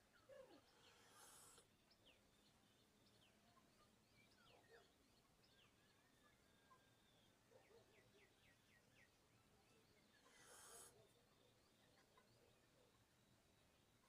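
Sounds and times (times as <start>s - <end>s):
faint birdsong: 0.0s - 14.0s.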